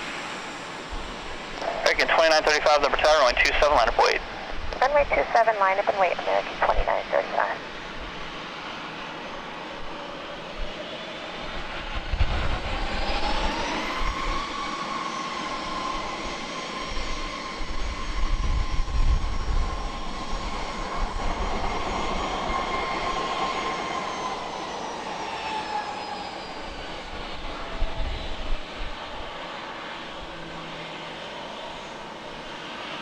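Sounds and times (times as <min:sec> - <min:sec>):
jet engines whining: 0:00.0 - 0:33.0.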